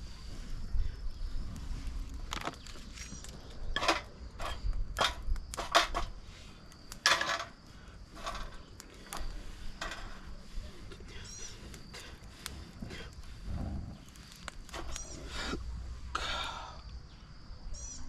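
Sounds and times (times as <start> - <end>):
hard objects clattering: 2.3 - 6.2, 6.9 - 10.3.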